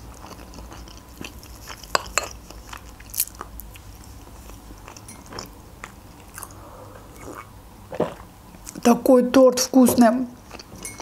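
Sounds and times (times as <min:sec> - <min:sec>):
close chewing: 0:00.0 - 0:06.6, 0:10.4 - 0:11.0.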